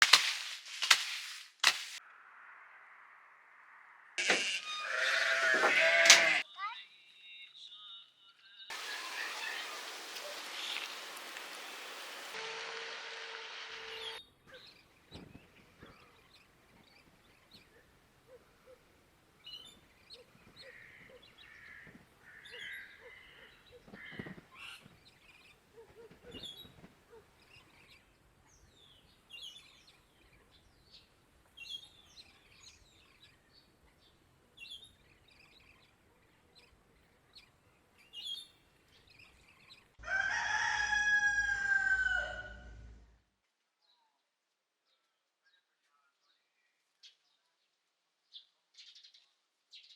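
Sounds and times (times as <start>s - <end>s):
small birds chirping: 8.7s - 12.3s, 13.9s - 40.0s
rooster crowing: 40.0s - 42.9s.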